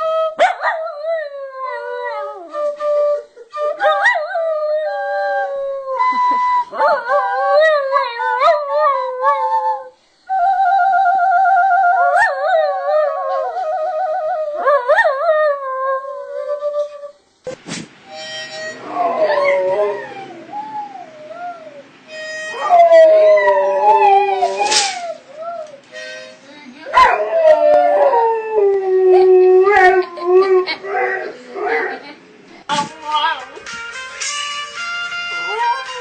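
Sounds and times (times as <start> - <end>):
dogs howling: 18.7 - 21.9, 22.5 - 25.8, 26.9 - 32.2.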